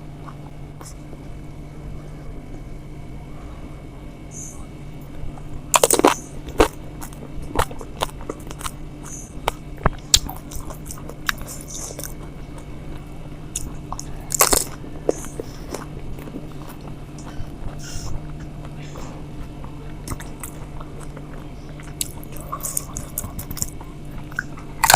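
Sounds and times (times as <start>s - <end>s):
chewing: 5.0s - 24.9s
crunching crisp shells: 5.7s - 12.3s, 13.6s - 15.9s.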